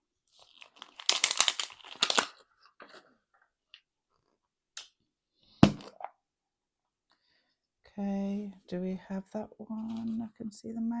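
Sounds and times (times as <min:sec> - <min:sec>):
plastic packaging crinkling and tearing: 0:00.3 - 0:03.0.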